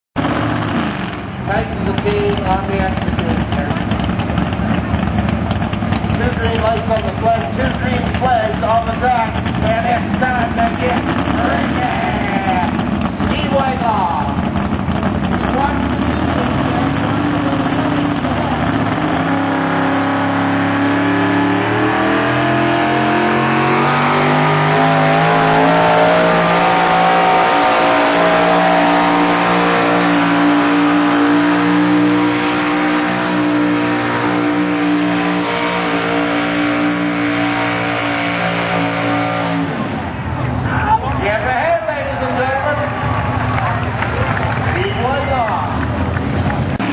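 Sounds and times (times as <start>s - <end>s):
tractor engine at full throttle: 0.2s - 46.9s.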